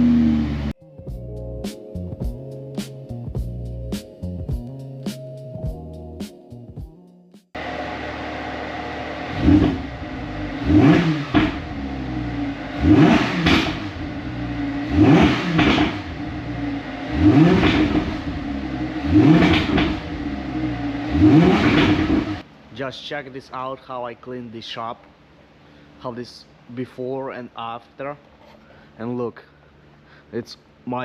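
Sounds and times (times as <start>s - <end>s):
car engine revving: 0.0s - 0.8s, 7.6s - 22.4s.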